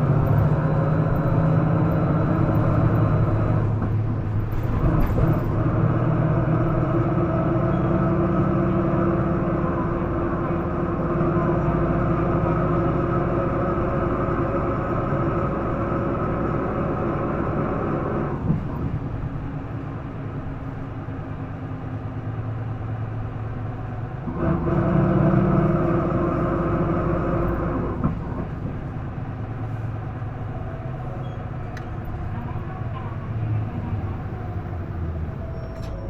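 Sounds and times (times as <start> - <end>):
bus diesel engine humming: 0.0 - 36.0.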